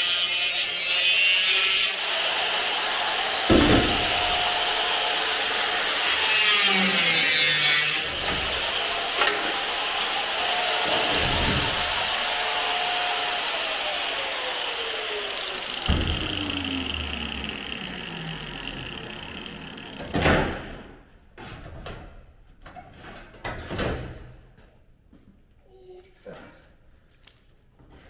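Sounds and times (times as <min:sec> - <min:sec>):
angle grinder cutting steel: 0:00.0 - 0:20.7
grinder winding down: 0:00.0 - 0:20.8.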